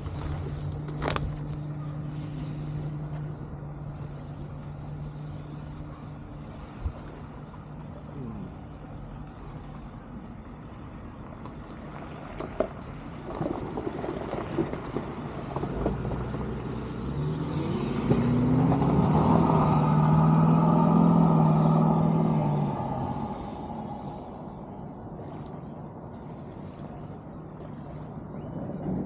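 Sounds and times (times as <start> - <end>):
motor vehicle passing: 13.5 - 25.5.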